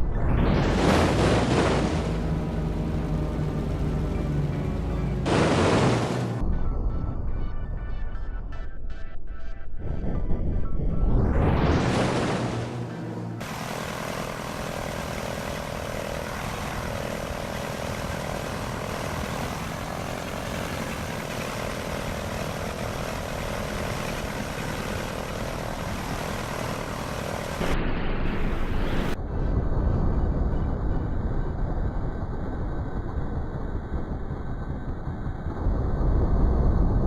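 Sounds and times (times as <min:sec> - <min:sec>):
dull rushing noise: 0:00.0 - 0:06.5, 0:09.8 - 0:37.0
aircraft engine noise: 0:00.6 - 0:06.4, 0:11.6 - 0:29.2
loud whoosh with low drone: 0:09.8 - 0:37.0.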